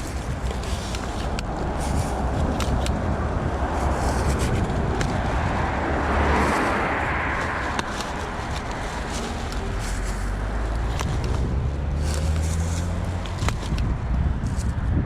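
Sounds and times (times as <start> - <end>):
road traffic passing: 0.0 - 15.0
wind on microphone: 0.0 - 15.0.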